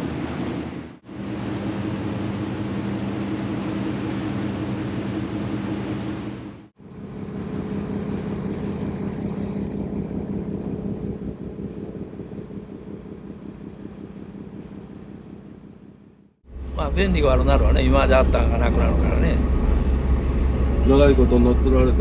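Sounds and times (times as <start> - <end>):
wind and water hiss: 0.0 - 6.7
ferry engine low hum: 0.0 - 22.0.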